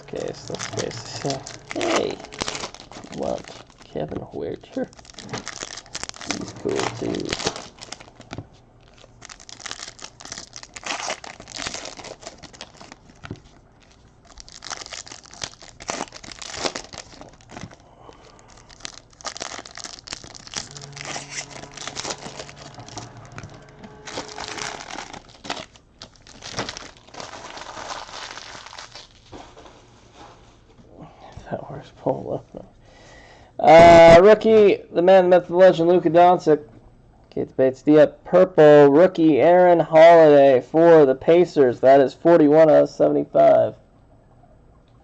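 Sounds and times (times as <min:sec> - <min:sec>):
wrappers tearing and crinkling: 0:00.0 - 0:29.7.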